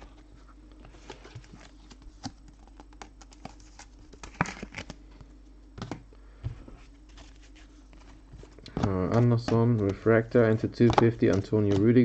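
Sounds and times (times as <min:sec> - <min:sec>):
trading cards being shuffled: 0:07.0 - 0:12.0.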